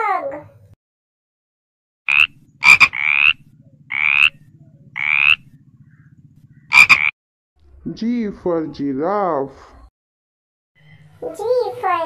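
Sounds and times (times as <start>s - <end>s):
frog croaking: 2.1s - 7.2s.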